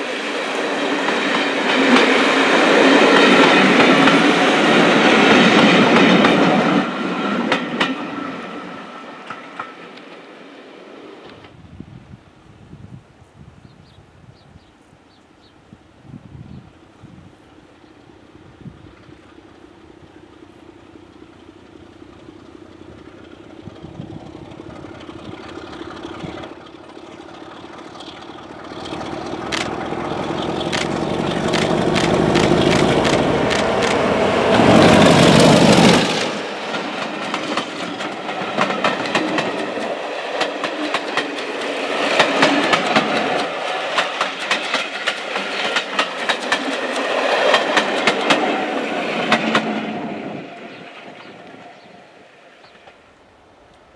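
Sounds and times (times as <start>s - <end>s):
diesel locomotive engine passing: 0.0s - 11.9s, 16.7s - 53.9s
train wheels clattering over rail joints: 0.9s - 8.2s, 20.8s - 50.0s.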